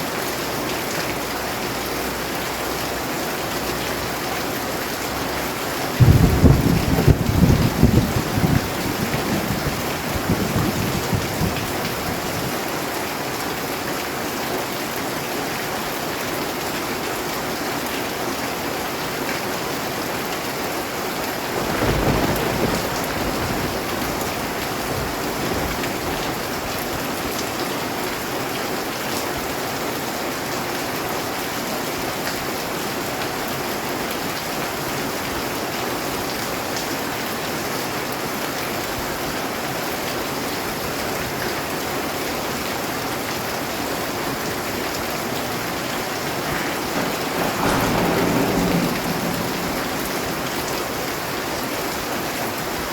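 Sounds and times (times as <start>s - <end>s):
rolling thunder: 2.6s - 13.8s, 20.8s - 28.2s, 44.1s - 52.9s
heavy rain hissing: 20.8s - 28.8s, 40.2s - 52.9s.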